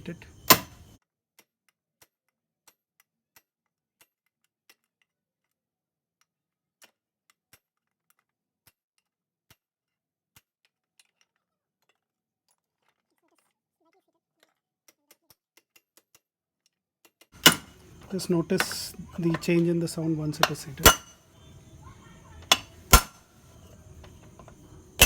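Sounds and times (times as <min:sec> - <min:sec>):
sharp metal taps: 0:00.0 - 0:01.0, 0:17.4 - 0:25.0.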